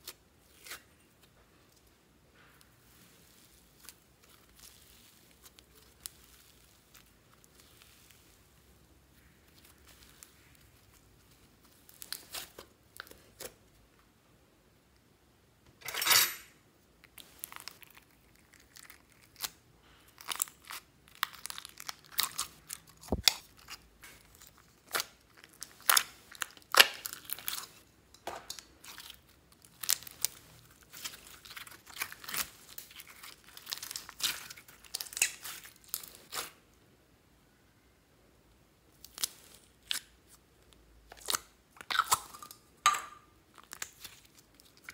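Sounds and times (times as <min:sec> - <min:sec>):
slime crackling and popping: 0:02.8 - 0:13.4, 0:17.1 - 0:27.8, 0:28.5 - 0:36.6, 0:43.5 - 0:44.9
slime tearing: 0:03.0 - 0:08.4, 0:09.5 - 0:13.6, 0:17.1 - 0:27.8, 0:28.5 - 0:36.6, 0:39.0 - 0:40.2.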